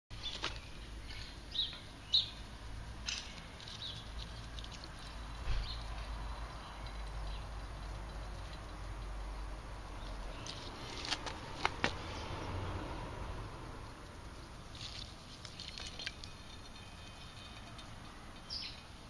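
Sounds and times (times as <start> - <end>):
bird chirps: 15.6 - 19.0.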